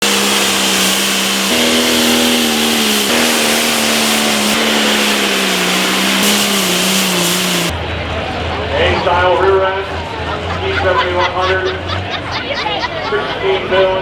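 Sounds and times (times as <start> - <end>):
turbo whine: 0.0 - 7.7
diesel engine at high revs: 0.0 - 7.8.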